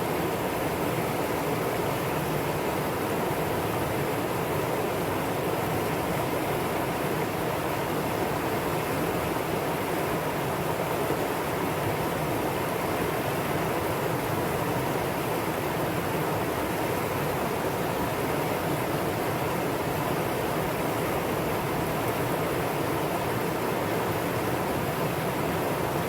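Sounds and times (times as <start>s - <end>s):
stream flowing: 0.0s - 26.0s.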